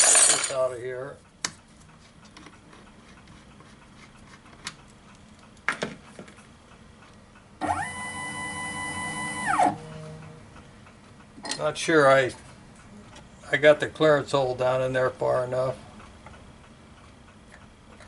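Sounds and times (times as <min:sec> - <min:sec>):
small electric motor whining: 0:07.6 - 0:10.2.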